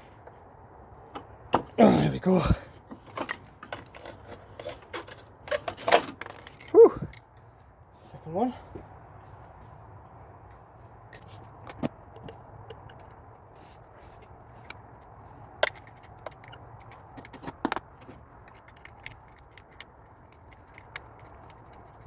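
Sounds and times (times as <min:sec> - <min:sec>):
hand tools clicking and clinking: 0:02.9 - 0:07.2, 0:11.2 - 0:22.0.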